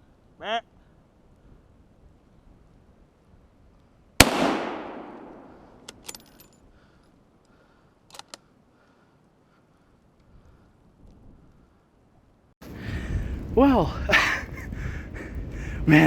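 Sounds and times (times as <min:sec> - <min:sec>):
loud gunshot echoing: 0:04.2 - 0:05.8
sharp metallic clicks: 0:08.1 - 0:08.4.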